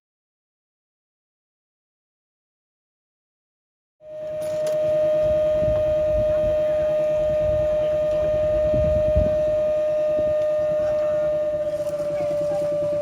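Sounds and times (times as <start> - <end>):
low rumbling noise: 4.0 - 13.0
steady high tone: 4.0 - 13.0.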